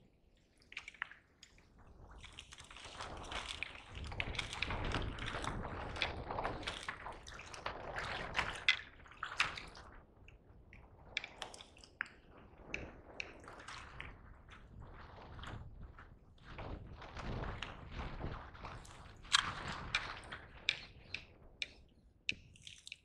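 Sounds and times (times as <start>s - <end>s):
water sloshing and splashing: 0.2s - 10.5s, 11.2s - 15.8s, 16.5s - 21.8s, 22.4s - 23.0s
water drips: 0.3s - 14.1s, 20.7s - 23.0s.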